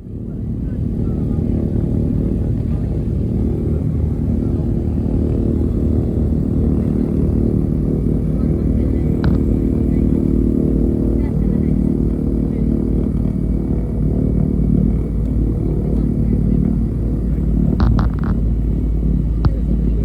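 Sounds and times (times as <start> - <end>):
piston aircraft engines rumbling: 0.0 - 20.0.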